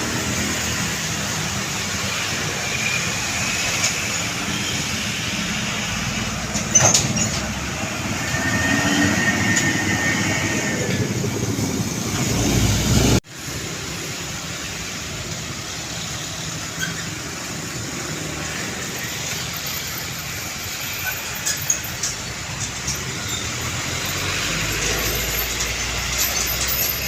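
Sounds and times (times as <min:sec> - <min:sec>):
heavy truck traffic: 0:00.0 - 0:27.0
thin high squeal: 0:19.4 - 0:27.0.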